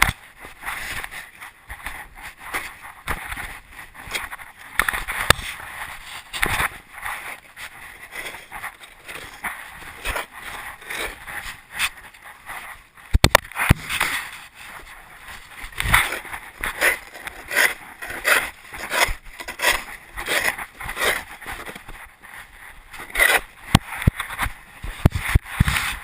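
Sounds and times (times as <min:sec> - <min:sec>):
rc truck rattling and scraping: 0:08.1 - 0:12.0, 0:15.8 - 0:21.8.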